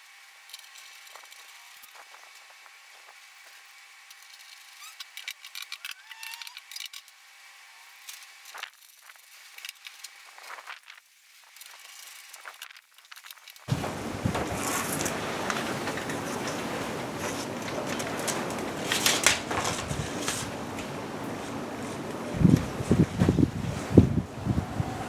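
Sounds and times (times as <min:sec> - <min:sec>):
small parts and tools clicking: 0:00.4 - 0:02.6, 0:03.2 - 0:07.2, 0:07.8 - 0:13.7
steady high hiss: 0:13.7 - 0:25.0.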